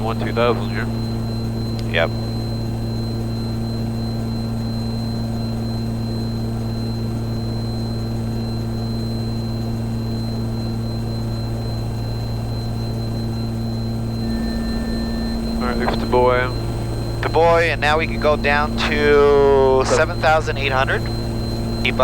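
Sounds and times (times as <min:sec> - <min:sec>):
aircraft engines droning: 0:00.0 - 0:03.0, 0:13.3 - 0:22.0
thin high whine: 0:13.7 - 0:22.0.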